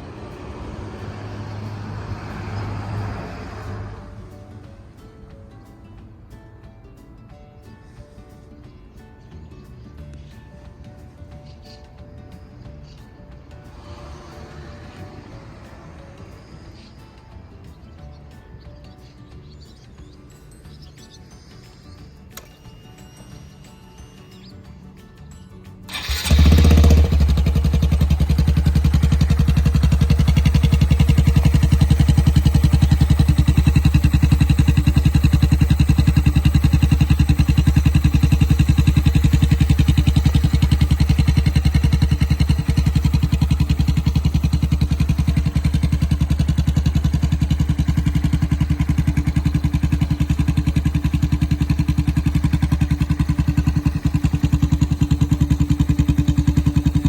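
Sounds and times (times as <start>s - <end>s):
motorcycle engine starting and idling: 25.9s - 57.0s.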